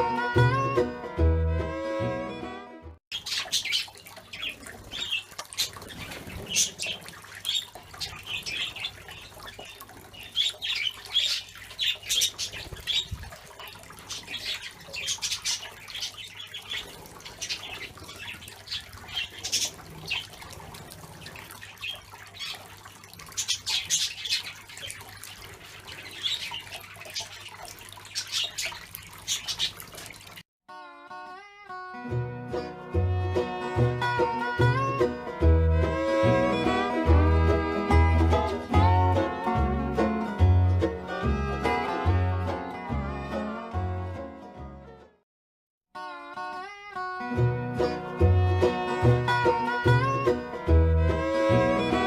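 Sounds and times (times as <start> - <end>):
budgerigars chattering and chirping: 3.1 - 13.2, 14.1 - 20.3.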